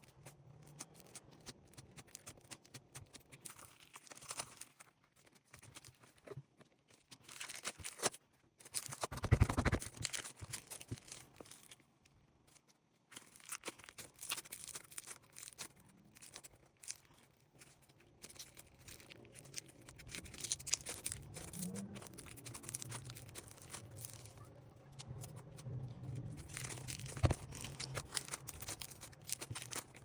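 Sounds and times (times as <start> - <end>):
slime crackling and popping: 0.0 - 5.9, 13.2 - 30.0
slime squelching: 7.2 - 11.6, 13.1 - 30.0.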